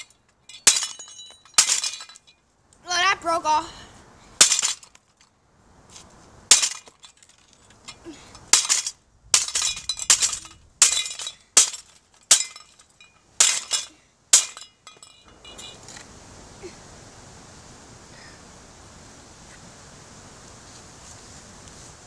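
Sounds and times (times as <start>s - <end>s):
ceiling fan being smashed: 0.0s - 2.4s, 4.4s - 5.3s, 6.5s - 16.0s.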